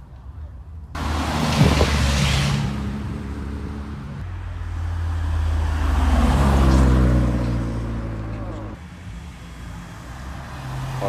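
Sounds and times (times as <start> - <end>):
cars driving past: 0.9 - 11.0.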